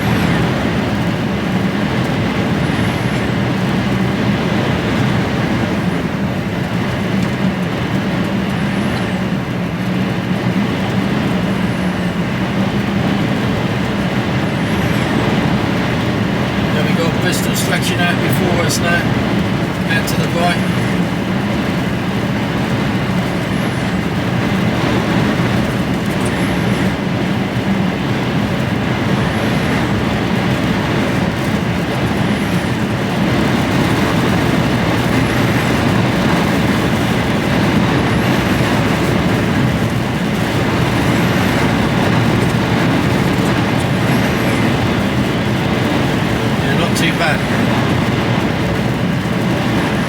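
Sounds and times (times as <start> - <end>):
diesel engine hum: 0.0 - 50.0
road and wind noise: 0.0 - 50.0.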